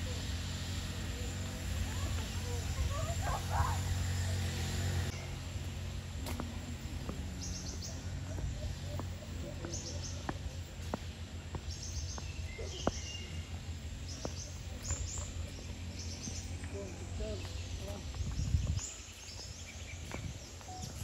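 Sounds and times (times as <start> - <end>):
small birds chirping: 0.0 - 21.0
steady low rumble: 5.0 - 21.0.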